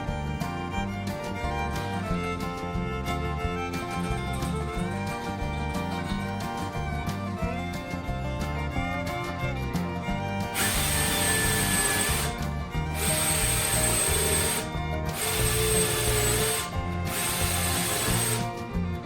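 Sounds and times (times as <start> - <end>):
background music: 0.0 - 19.0
power tool running: 10.1 - 19.0.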